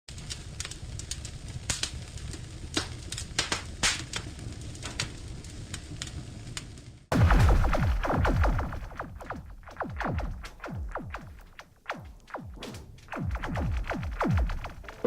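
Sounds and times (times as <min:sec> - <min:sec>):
fire low rumble: 0:00.1 - 0:11.1
wood fire crackling and popping: 0:00.1 - 0:15.0.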